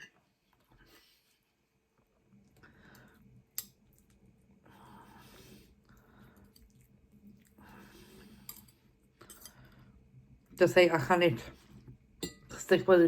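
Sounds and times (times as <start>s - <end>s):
chewing soft food: 2.2s - 10.2s.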